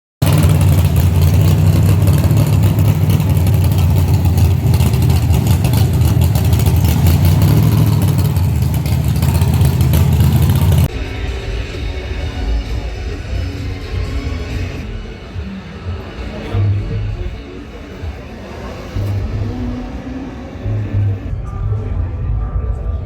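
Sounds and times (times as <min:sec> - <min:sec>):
car engine running: 0:00.2 - 0:21.3.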